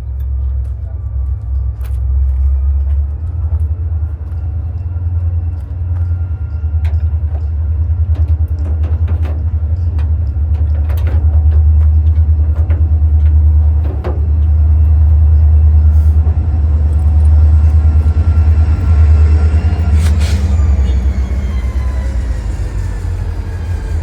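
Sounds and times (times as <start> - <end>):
loud low rumble: 10.6 - 24.0.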